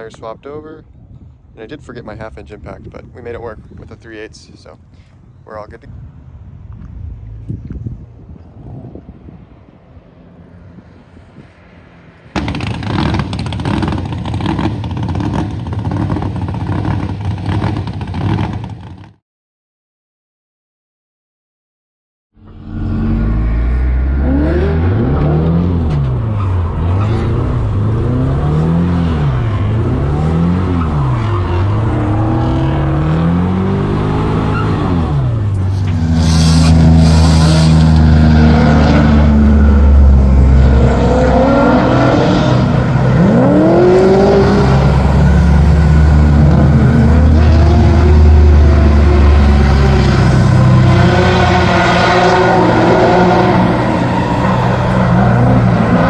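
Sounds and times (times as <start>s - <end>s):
car engine revving: 12.3s - 18.8s, 22.4s - 56.0s
tires squealing: 22.5s - 56.0s.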